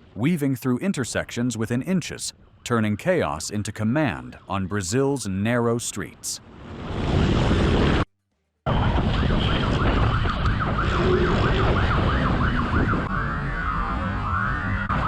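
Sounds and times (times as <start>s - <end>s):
wind rumble: 6.4s - 8.1s, 8.7s - 15.0s
police siren yelping: 8.7s - 15.0s.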